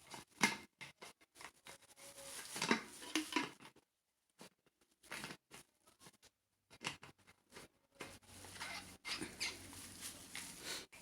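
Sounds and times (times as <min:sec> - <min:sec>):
plastic rustling: 0:01.4 - 0:03.7, 0:07.5 - 0:11.0.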